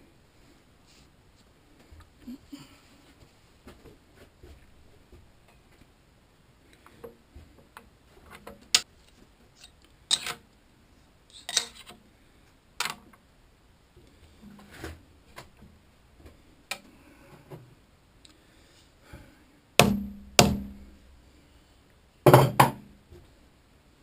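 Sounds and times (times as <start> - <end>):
metal tools clicking and knocking: 9.6 - 10.4, 11.3 - 12.0.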